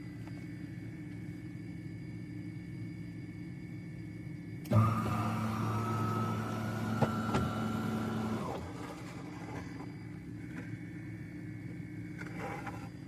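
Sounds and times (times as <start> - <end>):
espresso machine humming: 4.7 - 10.7.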